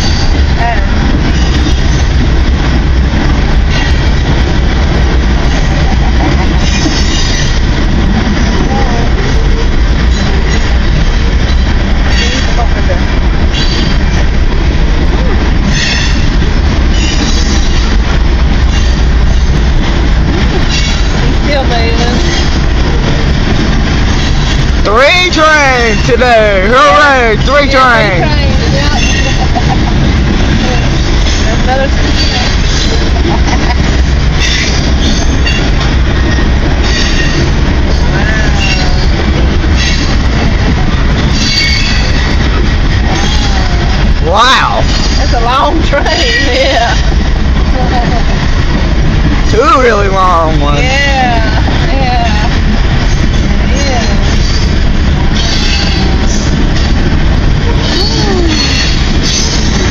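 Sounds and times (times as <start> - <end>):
freight train rumbling on rails: 0.0 - 59.9
train wheel squeals: 6.6 - 7.6, 13.5 - 14.0, 15.7 - 16.3, 16.9 - 17.9, 20.7 - 21.2, 28.7 - 29.5, 32.1 - 33.1, 34.4 - 40.3, 41.2 - 42.4, 55.4 - 56.9, 57.8 - 59.8
high wheel squeal: 16.9 - 17.8, 41.3 - 42.3.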